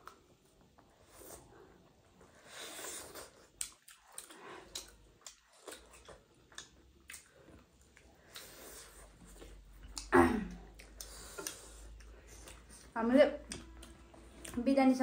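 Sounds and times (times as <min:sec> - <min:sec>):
chewing and biting food: 0:00.0 - 0:10.1, 0:10.7 - 0:14.7
wet mouth clicks and smacks: 0:03.4 - 0:08.5, 0:10.7 - 0:12.8.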